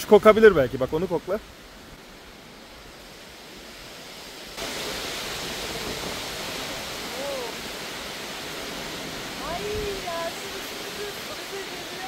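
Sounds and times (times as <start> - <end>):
steady rushing noise: 4.3 - 12.0.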